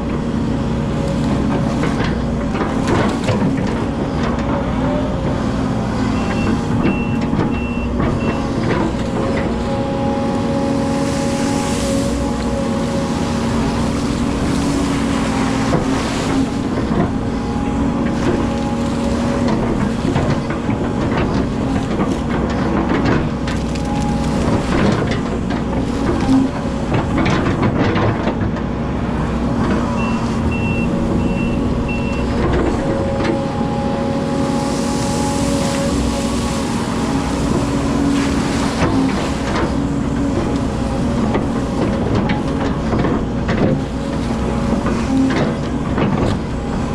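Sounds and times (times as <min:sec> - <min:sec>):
excavator engine running: 0:00.0 - 0:46.9
high warning beeps: 0:30.0 - 0:32.2.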